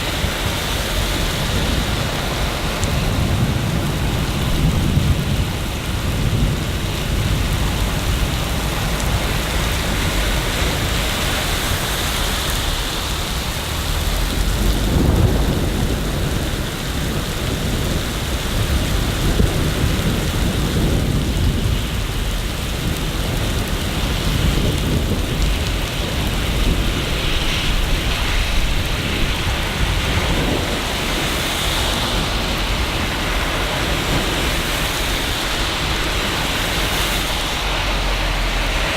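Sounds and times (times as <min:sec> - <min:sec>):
rain on hard surfaces: 0:00.0 - 0:38.9.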